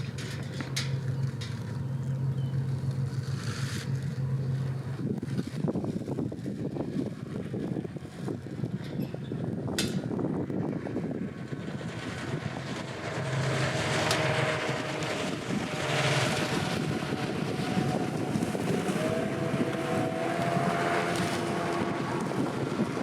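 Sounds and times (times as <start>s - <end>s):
boat engine humming: 0.0s - 23.0s
wind noise on microphone: 0.0s - 23.0s.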